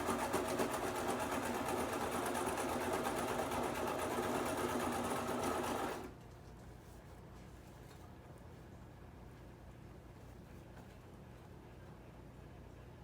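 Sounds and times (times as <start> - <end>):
sewing machine running fast: 0.0 - 6.1.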